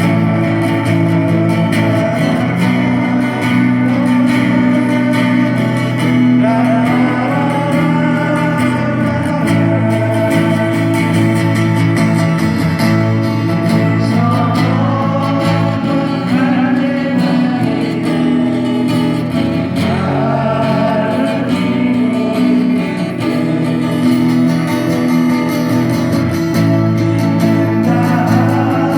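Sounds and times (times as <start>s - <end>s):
acoustic guitars strumming: 0.0s - 28.9s.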